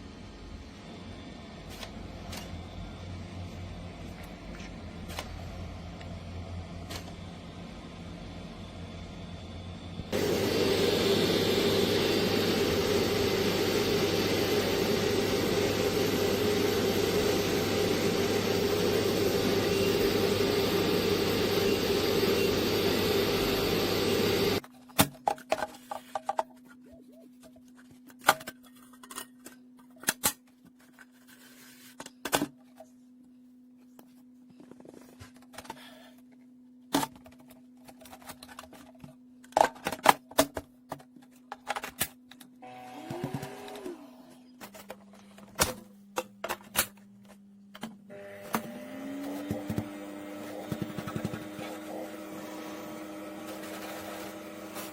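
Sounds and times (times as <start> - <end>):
grooming vacuum motor hum: 0.7 - 24.6, 42.6 - 44.6, 48.1 - 54.9.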